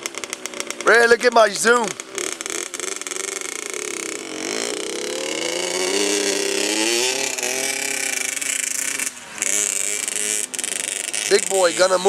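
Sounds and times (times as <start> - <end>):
off-road vehicle engine accelerating: 0.0 - 12.0.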